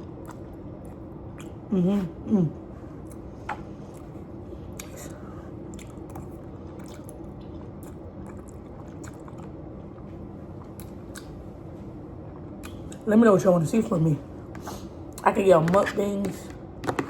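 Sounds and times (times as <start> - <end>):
chewing and wet mouth sounds: 0.0 - 1.7, 3.0 - 11.6, 12.3 - 13.1
low hum: 0.0 - 17.0
mouth clicks and smacks: 10.8 - 11.4.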